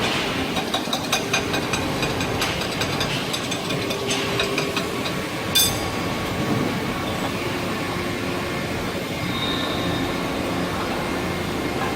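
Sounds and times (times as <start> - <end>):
industrial machinery noise: 0.0 - 11.9
metallic clank: 0.1 - 6.0.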